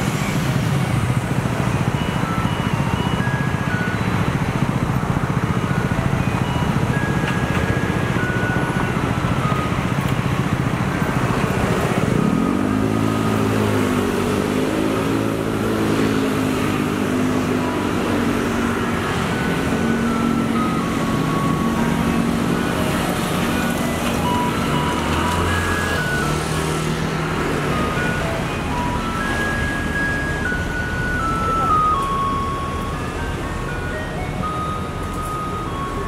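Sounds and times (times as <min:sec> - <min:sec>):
diesel truck engine revving: 0:10.8 - 0:36.0.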